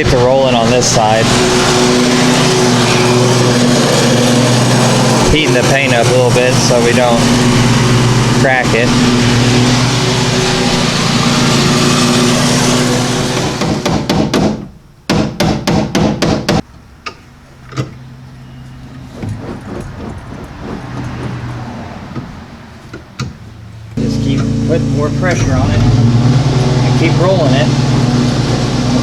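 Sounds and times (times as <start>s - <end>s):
heat gun blowing: 1.2s - 13.7s, 19.1s - 22.0s.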